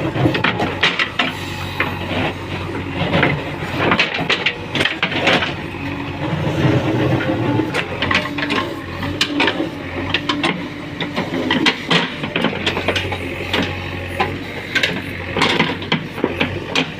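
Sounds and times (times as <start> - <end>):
diesel engine running: 0.0 - 16.9.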